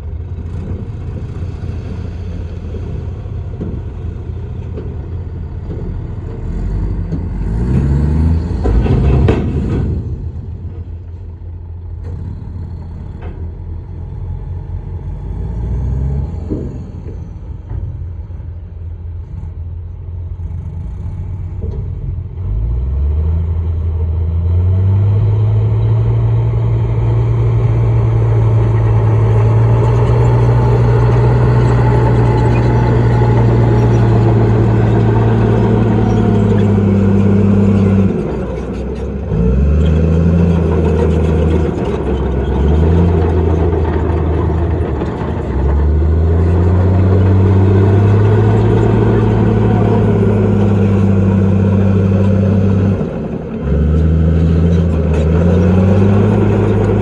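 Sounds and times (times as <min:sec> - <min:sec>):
heavy diesel engine revving: 0:00.4 - 0:17.8, 0:20.4 - 0:57.0.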